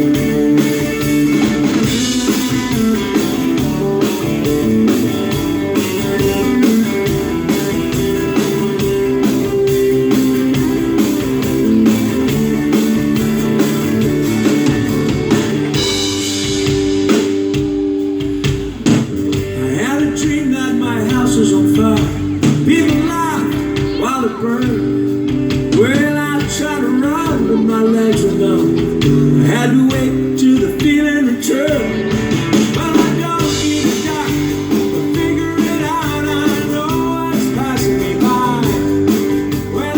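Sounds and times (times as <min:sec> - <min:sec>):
live band with guitar: 0:00.0 - 0:39.9
person singing: 0:19.4 - 0:39.9.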